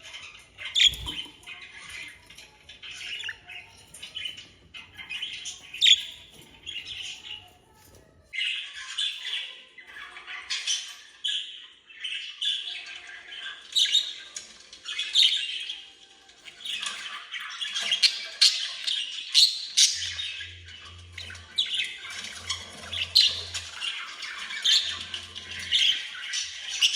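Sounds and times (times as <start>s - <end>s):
budgerigars chattering and warbling: 0.1s - 7.5s, 16.5s - 26.9s.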